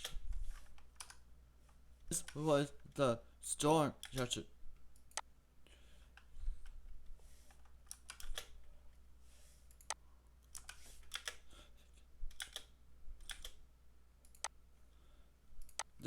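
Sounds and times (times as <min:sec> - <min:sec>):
keyboard and mouse clicking: 0:00.0 - 0:01.2, 0:07.5 - 0:08.6, 0:09.7 - 0:11.4, 0:12.3 - 0:13.6, 0:14.2 - 0:14.6.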